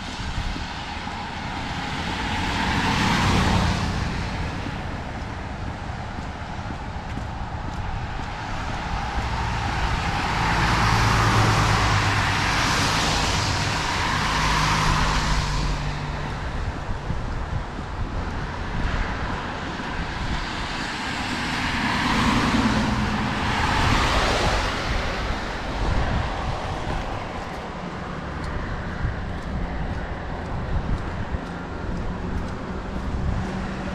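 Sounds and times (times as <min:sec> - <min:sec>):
car tyres hissing on wet road: 0:00.0 - 0:04.7, 0:08.0 - 0:16.4, 0:20.4 - 0:27.4
traffic rumble: 0:00.0 - 0:33.9
wind: 0:00.0 - 0:33.9.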